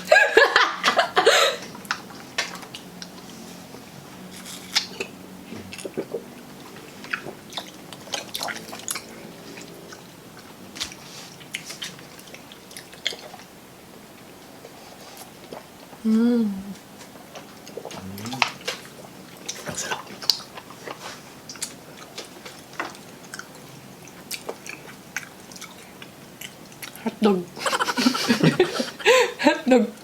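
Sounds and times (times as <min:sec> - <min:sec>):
people chewing: 0:00.0 - 0:16.0, 0:16.8 - 0:29.4
voice-like noise burst: 0:18.0 - 0:18.6.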